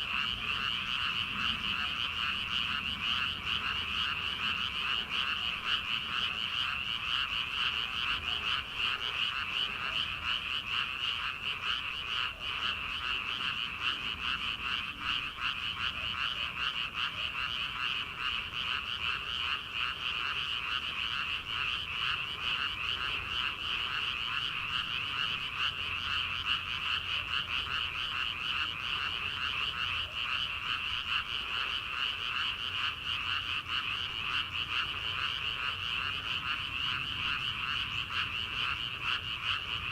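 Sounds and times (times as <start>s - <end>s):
frogs croaking: 0.0s - 39.9s.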